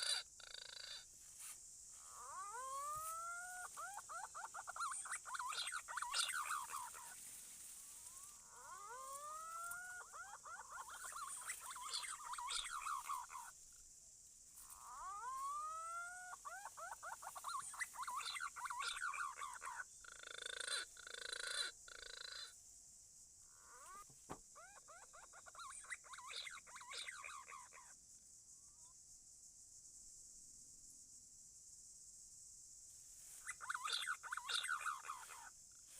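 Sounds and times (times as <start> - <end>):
pigeon calls played back: 0.0 - 1.0, 2.1 - 7.2, 8.6 - 13.5, 33.5 - 35.5
insects droning: 0.0 - 35.9.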